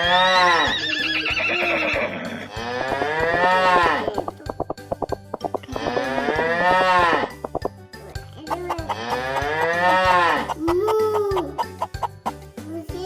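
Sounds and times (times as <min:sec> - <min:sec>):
cow mooing: 0:00.0 - 0:04.0, 0:05.7 - 0:07.4, 0:09.0 - 0:10.6
horse whinny: 0:00.0 - 0:04.0, 0:05.7 - 0:07.4.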